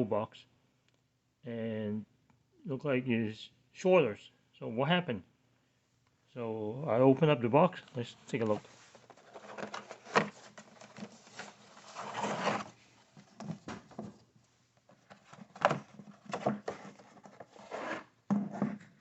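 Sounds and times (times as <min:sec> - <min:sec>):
cardboard rustling and scraping: 0:08.0 - 0:14.3, 0:14.9 - 0:19.0.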